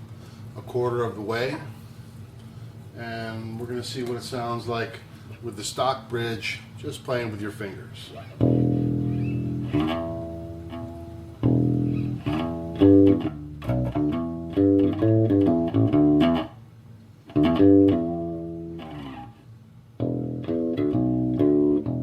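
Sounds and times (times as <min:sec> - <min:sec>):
electric bass played fingerstyle: 0:08.4 - 0:16.6, 0:17.2 - 0:19.4, 0:20.0 - 0:22.0.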